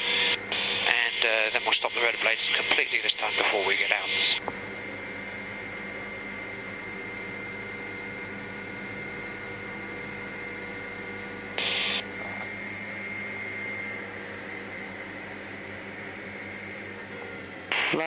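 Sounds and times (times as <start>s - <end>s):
faint high whine: 0.0s - 18.0s
helicopter turbine idling: 11.2s - 18.0s.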